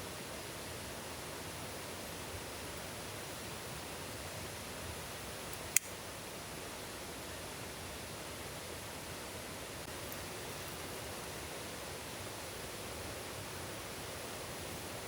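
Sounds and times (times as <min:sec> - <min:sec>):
flowing stream water: 0:00.0 - 0:15.0
rain hiss: 0:00.0 - 0:15.0
sharp click: 0:05.6 - 0:06.0.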